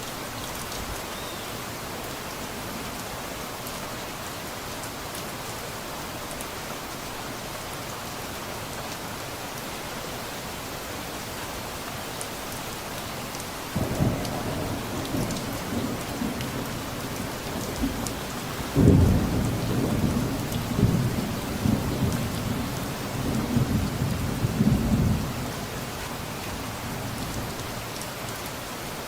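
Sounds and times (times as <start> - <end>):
steady rain falling: 0.0 - 29.0
low rumble of thunder: 13.8 - 25.5.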